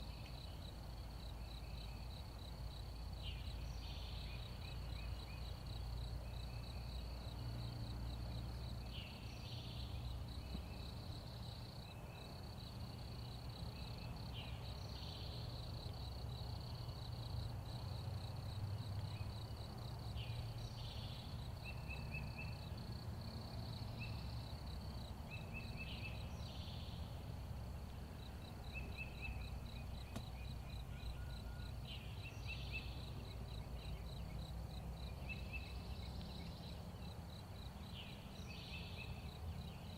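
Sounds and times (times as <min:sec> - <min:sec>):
small birds chirping: 0:00.0 - 0:07.5, 0:20.0 - 0:27.1, 0:28.1 - 0:39.9
insect trill: 0:00.0 - 0:39.9.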